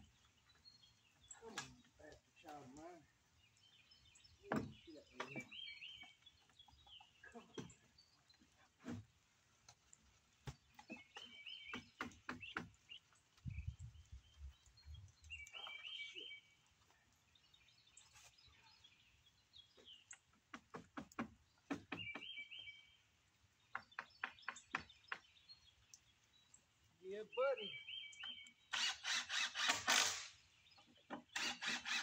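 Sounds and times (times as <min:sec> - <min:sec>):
faint bird chirping: 0:10.4 - 0:20.4, 0:21.4 - 0:28.8
light taps and knocks: 0:20.1 - 0:22.3.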